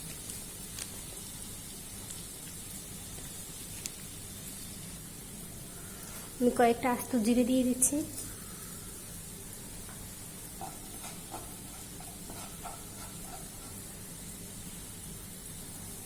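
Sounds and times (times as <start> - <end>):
spices sizzling in a frying pan: 0.0 - 16.0
faint stirring knocks: 9.8 - 13.9.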